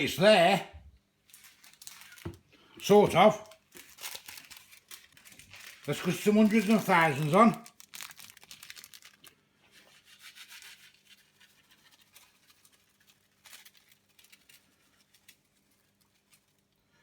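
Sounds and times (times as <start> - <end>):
sprinkles shaken from container: 3.8 - 16.6.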